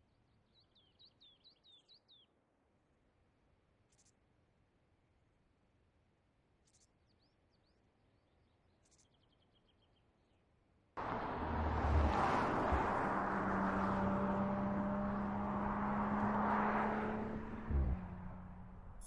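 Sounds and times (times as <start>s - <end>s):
car engine and road noise: 11.0s - 19.0s.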